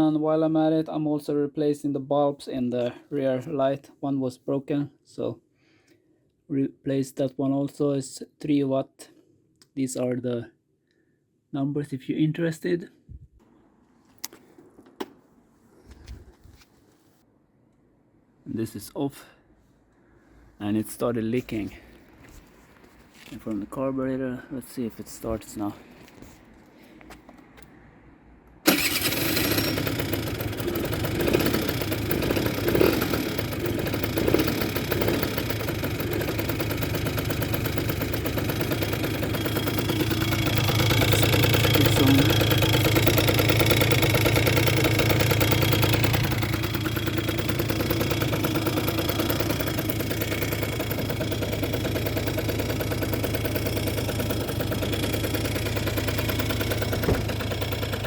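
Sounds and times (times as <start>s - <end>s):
scooter engine running: 28.7s - 58.0s.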